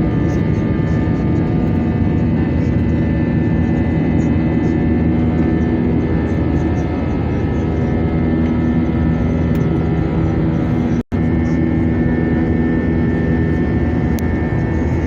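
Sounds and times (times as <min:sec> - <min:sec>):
airliner engines roaring: 0:00.0 - 0:15.0.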